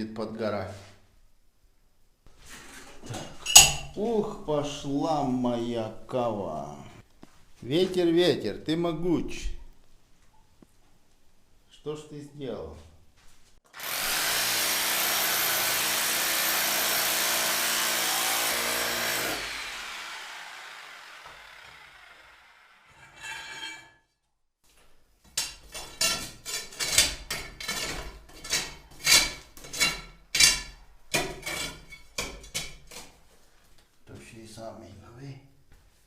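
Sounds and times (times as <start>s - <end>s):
power tool running: 13.7s - 22.9s
hand saw strokes: 13.8s - 23.8s.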